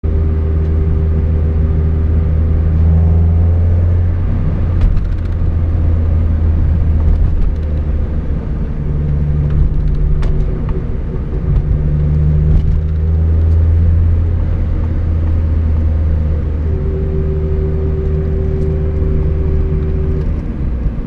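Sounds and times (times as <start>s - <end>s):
low drivetrain drone: 0.0s - 21.0s
differential whining: 0.2s - 21.0s.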